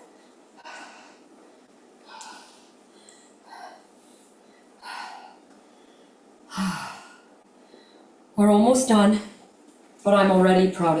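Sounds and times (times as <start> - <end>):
woman breathing hard: 0.1 - 8.2.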